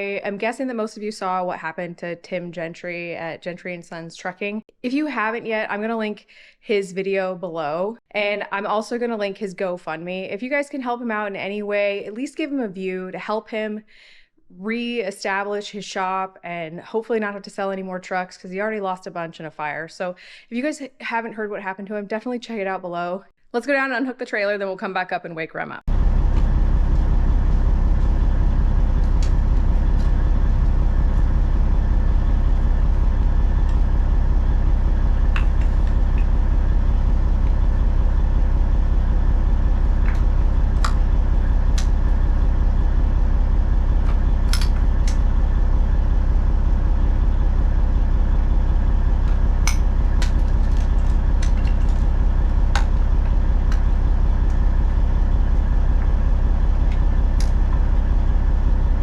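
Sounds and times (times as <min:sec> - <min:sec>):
truck engine droning: 0:25.9 - 0:59.0
sharp clicks and rattles: 0:43.7 - 0:45.4, 0:48.7 - 0:57.9.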